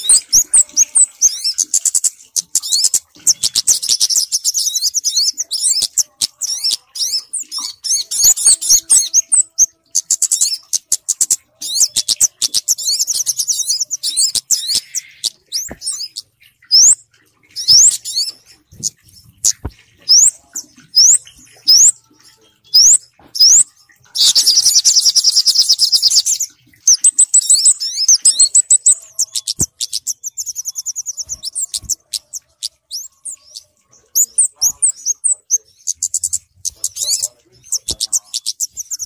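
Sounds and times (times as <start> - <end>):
rapid chattering bird trills: 0.0 - 39.0.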